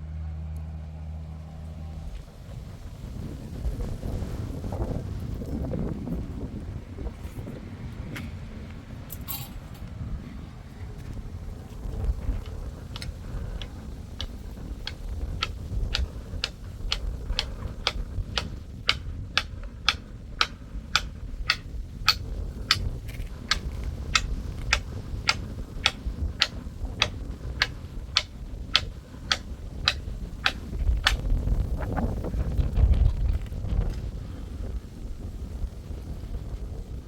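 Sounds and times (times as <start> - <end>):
wind rumble on microphone: 0.0 - 37.0
sharp even taps: 16.9 - 22.9, 23.5 - 31.2.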